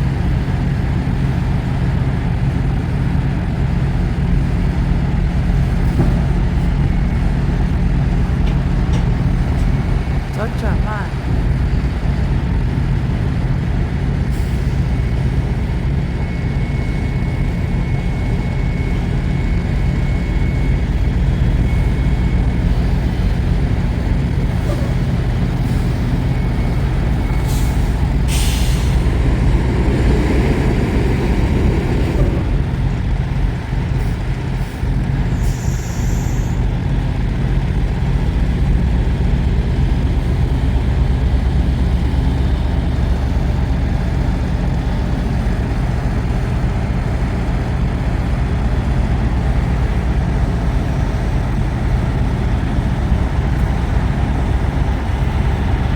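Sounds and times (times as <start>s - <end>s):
diesel truck engine running: 0.0s - 55.9s.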